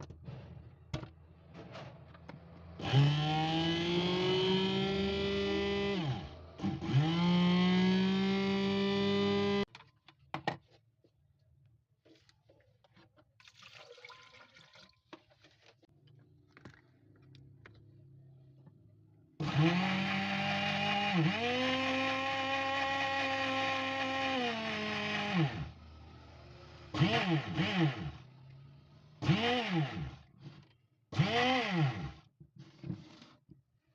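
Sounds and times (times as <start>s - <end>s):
blender motor whining: 2.8s - 9.7s, 19.4s - 25.8s, 26.9s - 28.3s, 29.2s - 30.3s, 31.1s - 32.2s.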